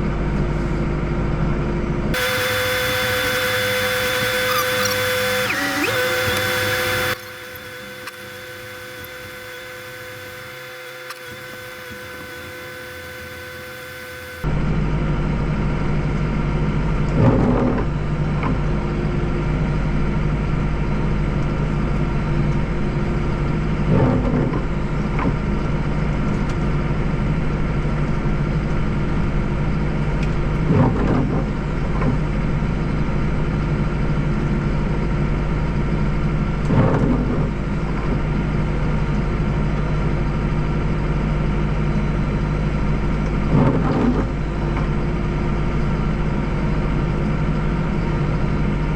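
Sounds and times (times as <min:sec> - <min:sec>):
tractor diesel engine running: 0:00.0 - 0:14.7.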